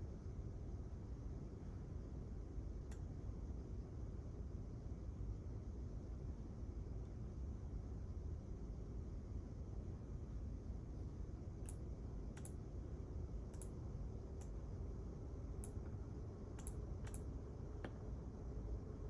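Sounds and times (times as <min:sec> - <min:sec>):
low room hum: 0:00.0 - 0:19.0
small sharp clicks: 0:02.9 - 0:03.1, 0:11.6 - 0:11.8, 0:12.4 - 0:12.6, 0:13.5 - 0:13.8, 0:15.6 - 0:15.9, 0:16.6 - 0:18.0.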